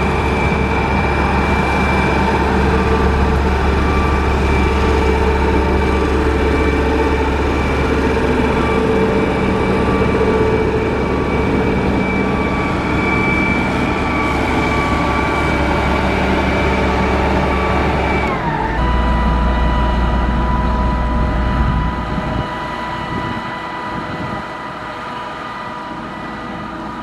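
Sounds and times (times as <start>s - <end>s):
diesel engine running: 0.0s - 27.0s
high whine: 0.0s - 27.0s.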